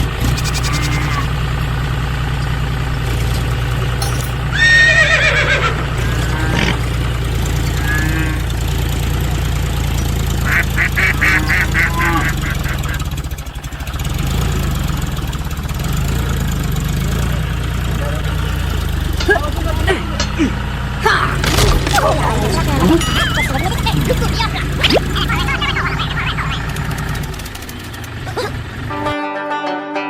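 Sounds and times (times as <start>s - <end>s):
tractor engine idling: 0.0s - 29.2s
loud swooping call: 0.2s - 1.4s, 10.4s - 13.0s
short pitched chirps: 0.2s - 1.4s.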